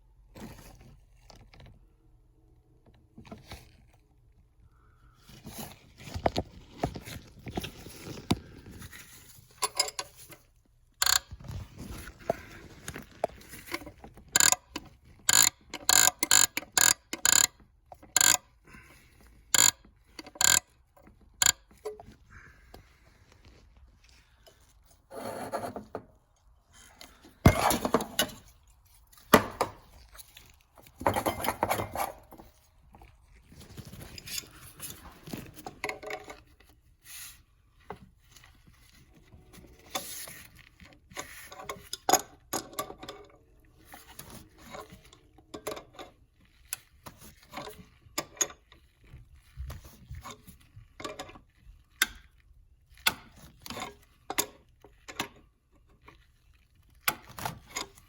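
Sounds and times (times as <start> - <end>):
metal tools clinking and scraping: 9.2 - 11.2, 26.8 - 32.6.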